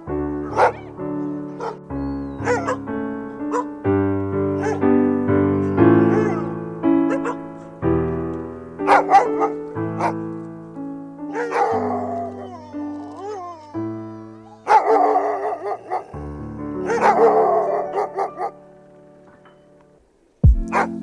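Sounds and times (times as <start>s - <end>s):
background piano music: 0.0s - 21.0s
dog whining: 0.4s - 2.8s, 4.6s - 4.8s, 6.0s - 6.5s, 11.3s - 16.2s
dog barking and yipping: 0.4s - 3.8s, 4.6s - 4.9s, 5.6s - 7.7s, 8.8s - 10.5s, 11.3s - 13.7s, 14.4s - 16.2s, 16.8s - 18.7s, 20.7s - 21.0s.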